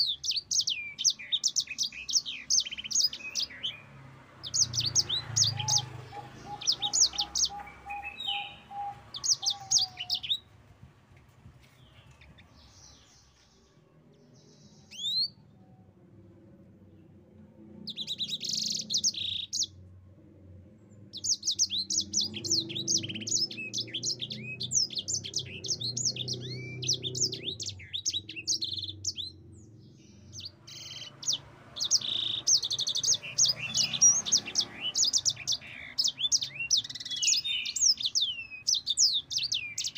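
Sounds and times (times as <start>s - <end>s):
canary twittering song: 0.0s - 10.5s, 11.7s - 15.4s, 17.8s - 19.8s, 21.1s - 39.9s.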